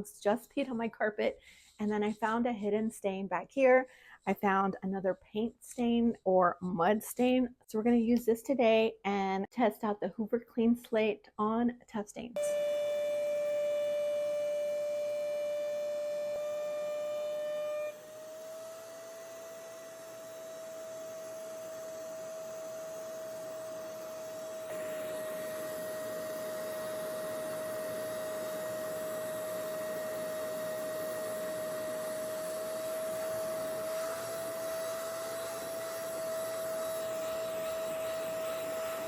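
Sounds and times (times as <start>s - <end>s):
carpet cleaner motor whine: 12.4s - 39.0s.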